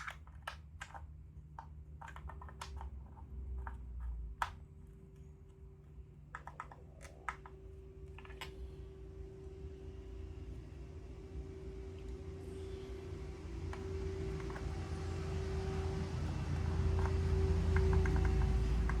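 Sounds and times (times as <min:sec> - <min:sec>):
steady low hum: 0:00.0 - 0:19.0
tools and engine parts clicking: 0:16.5 - 0:19.0.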